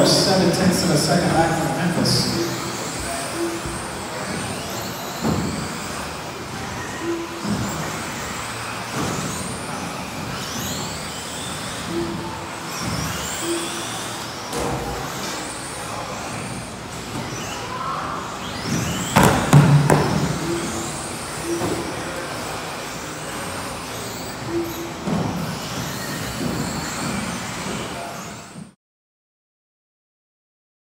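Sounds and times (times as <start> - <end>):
electric motors whining: 0.0 - 28.8
loud sharp clatter of knocks: 18.8 - 20.4.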